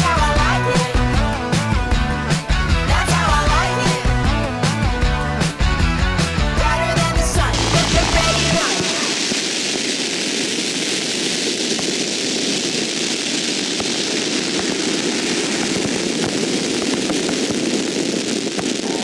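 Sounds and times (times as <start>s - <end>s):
swarm of drones humming: 7.4s - 9.5s.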